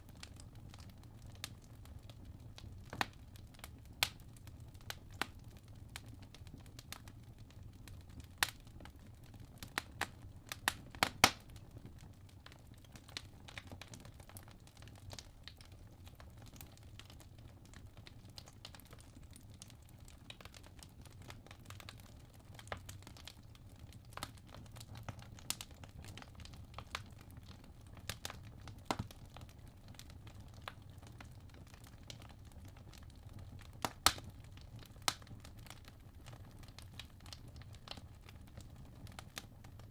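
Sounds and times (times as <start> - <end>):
low rumble of flame: 0.0 - 39.9
logs crackling and popping: 0.1 - 39.9.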